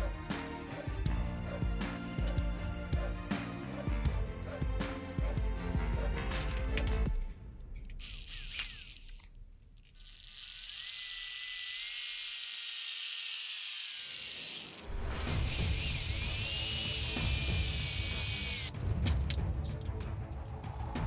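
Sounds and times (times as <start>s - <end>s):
background music: 0.0s - 8.2s, 14.9s - 21.0s
power tool whining: 7.9s - 18.7s.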